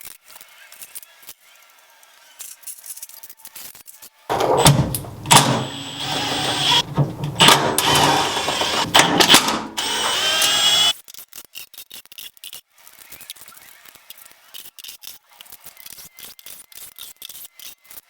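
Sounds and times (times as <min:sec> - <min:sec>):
power tool running in surges: 0:04.3 - 0:10.9.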